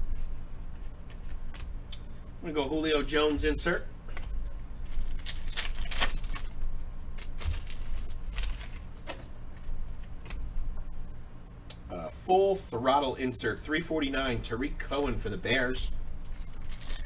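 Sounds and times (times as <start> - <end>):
card pack wrapper crinkling: 4.1 - 9.3, 16.2 - 17.0.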